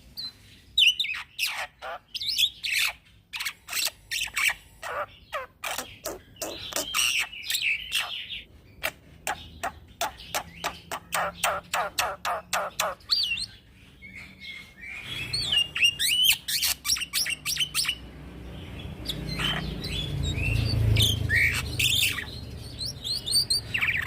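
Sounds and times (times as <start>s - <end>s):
scratchy bird chattering: 0.2s - 18.0s, 18.8s - 24.0s
starling singing harsh notes: 1.0s - 24.0s.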